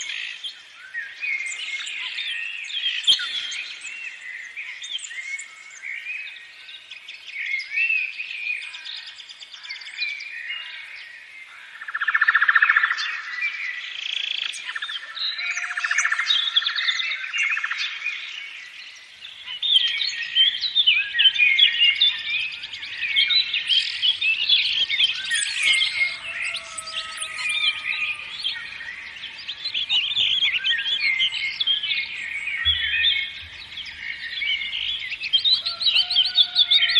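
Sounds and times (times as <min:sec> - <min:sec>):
songbirds chirping: 0:00.0 - 0:36.9
bird trill: 0:19.3 - 0:36.9.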